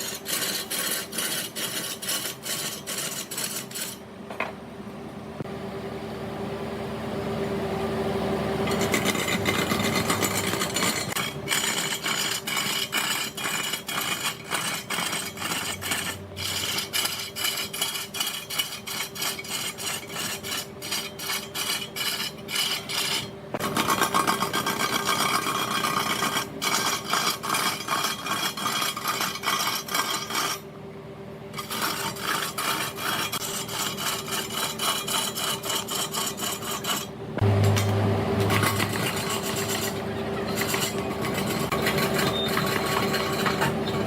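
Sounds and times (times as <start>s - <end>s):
turning tool scraping wood: 0.0s - 4.0s, 8.7s - 30.7s, 31.5s - 44.0s
deep loud hum: 4.1s - 25.6s, 30.6s - 44.0s
lathe humming: 7.4s - 30.6s, 31.6s - 44.0s.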